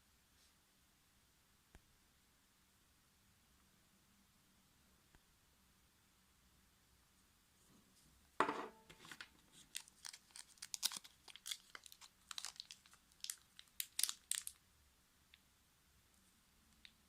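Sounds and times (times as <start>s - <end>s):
plastic packaging crinkling and tearing: 9.0s - 14.6s.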